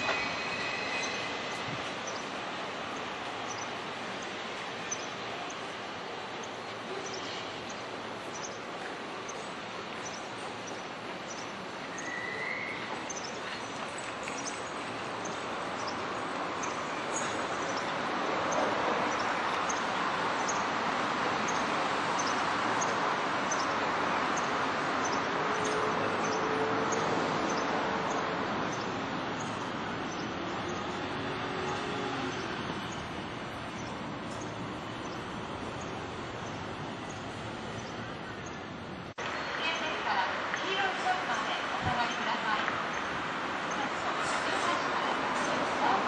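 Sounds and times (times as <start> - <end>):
train whine: 0.0 - 6.3
electric train rumbling: 0.0 - 39.6.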